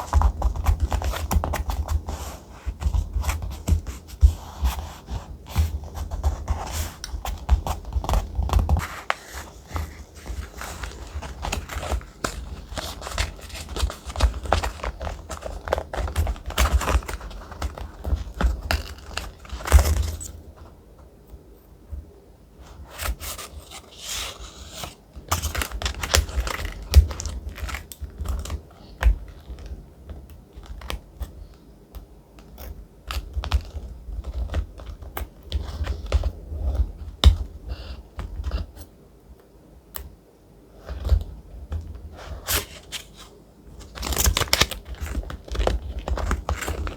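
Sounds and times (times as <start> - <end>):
paper rustling and crinkling: 0.0 - 20.8, 22.6 - 31.0, 42.0 - 46.9.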